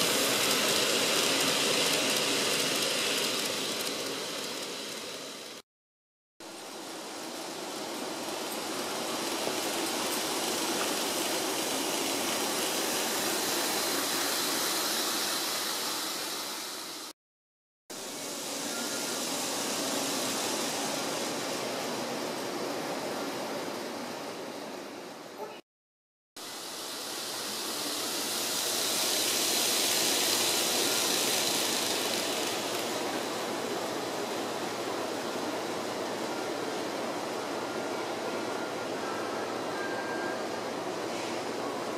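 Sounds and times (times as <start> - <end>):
model train whirring on track: 0.0 - 5.6, 6.4 - 17.1, 17.9 - 25.4, 26.4 - 41.9.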